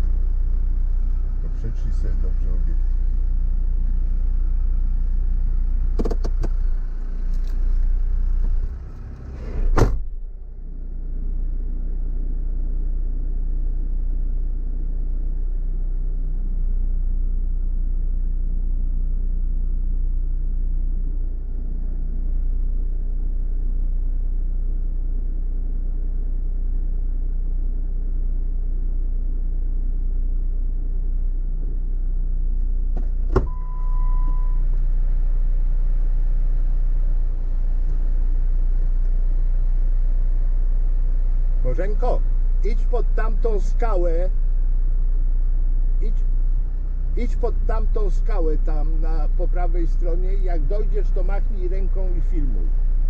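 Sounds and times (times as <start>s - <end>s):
car engine humming: 0.0s - 53.0s
sharp clicks and knocks: 5.9s - 6.6s
car door shutting: 5.9s - 7.8s, 8.4s - 10.4s, 32.9s - 34.6s.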